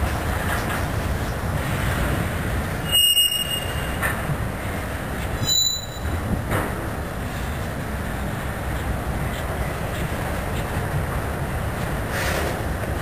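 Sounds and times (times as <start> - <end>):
freight cars rolling on rails: 0.0 - 13.0
wheel squeals: 2.8 - 4.1, 5.4 - 6.2.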